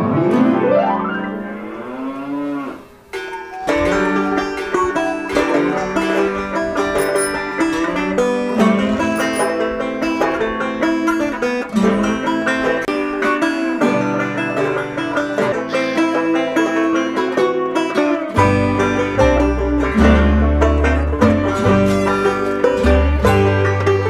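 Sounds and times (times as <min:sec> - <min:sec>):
plucked string music: 0:00.0 - 0:01.8, 0:03.0 - 0:24.0.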